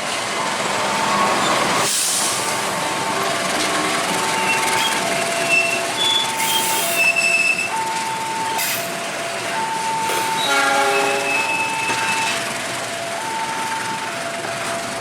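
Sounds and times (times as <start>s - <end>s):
freight train wagons rumbling: 0.0s - 15.0s
train wheel squeals: 4.2s - 7.8s, 9.9s - 12.5s
level crossing alarm two tones: 4.2s - 15.0s
chord-like horn blast: 10.4s - 11.5s.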